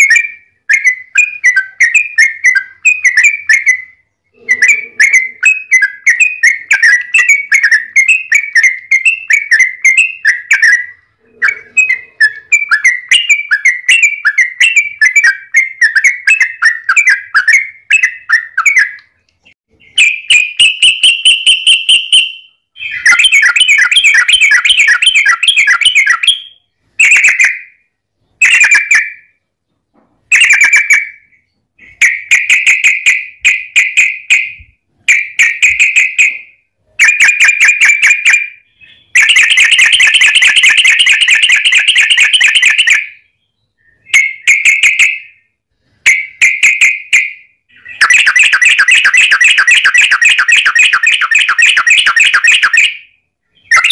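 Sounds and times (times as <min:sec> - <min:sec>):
bird chattering song: 0:00.0 - 0:53.9.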